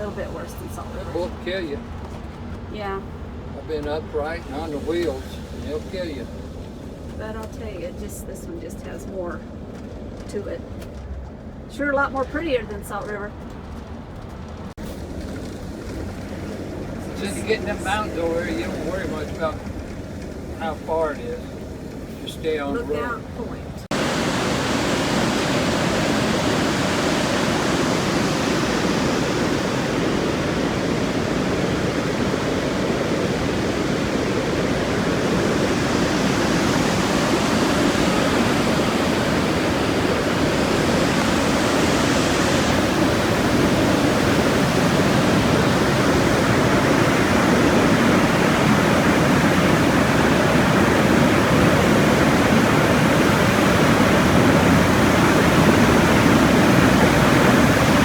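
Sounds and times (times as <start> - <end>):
waterfall rushing: 23.9 - 58.0.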